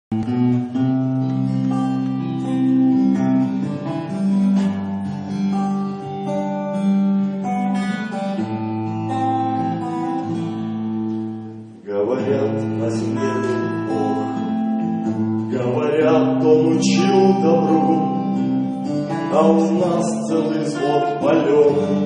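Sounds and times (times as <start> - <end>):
acoustic guitar strumming chords: 0.1 - 22.0.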